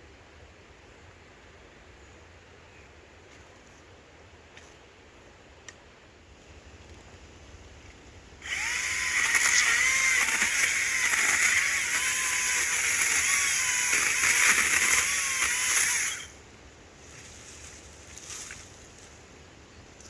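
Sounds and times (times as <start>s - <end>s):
battery chainsaw cutting branch: 8.4s - 16.4s.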